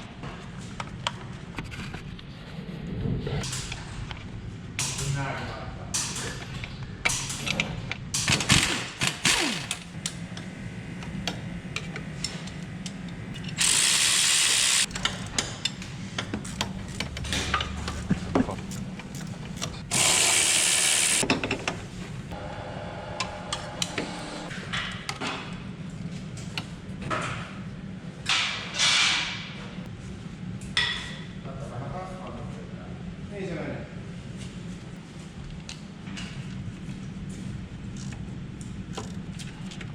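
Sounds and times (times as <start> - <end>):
ratchet clicks: 13.4 - 15.2
loud hiss: 19.9 - 21.2.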